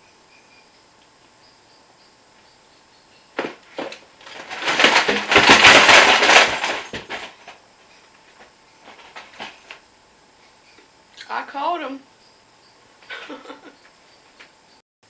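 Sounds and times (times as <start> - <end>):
items clattering as they fall: 3.4 - 7.6, 8.3 - 9.8.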